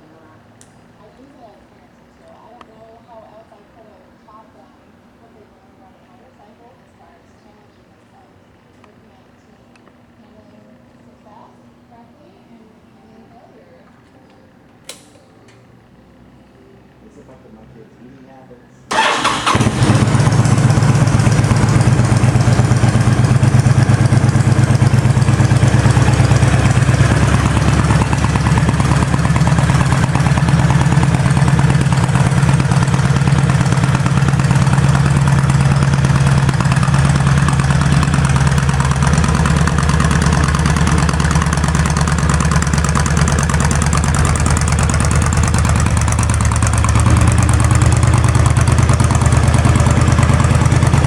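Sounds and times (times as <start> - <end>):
motorcycle engine idling: 18.9 - 51.0.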